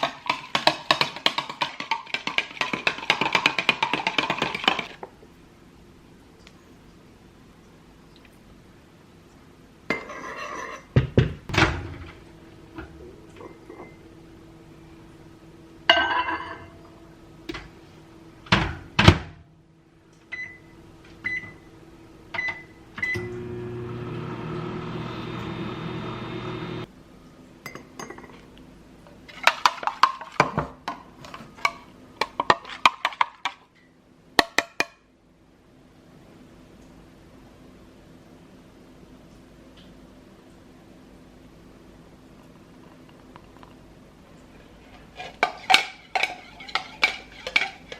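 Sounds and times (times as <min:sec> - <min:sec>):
dishes clattering: 0:09.9 - 0:12.2, 0:15.9 - 0:16.9, 0:45.2 - 0:47.9
microwave oven humming: 0:20.3 - 0:26.9.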